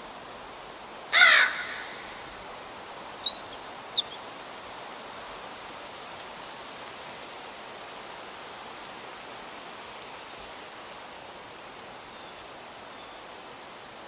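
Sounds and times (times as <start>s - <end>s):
outdoor hiss: 0.0s - 14.0s
loud bird call: 1.2s - 2.3s
songbird chirping: 3.1s - 4.4s.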